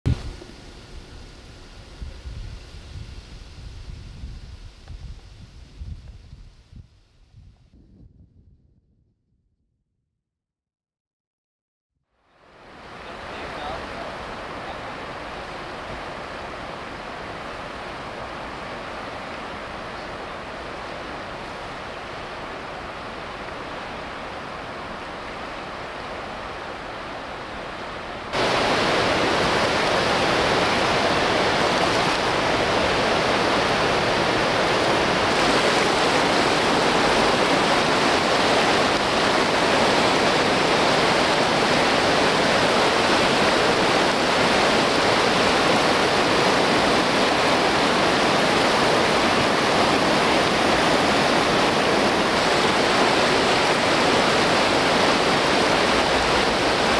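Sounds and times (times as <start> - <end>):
river rapids rushing: 12.5 - 56.9.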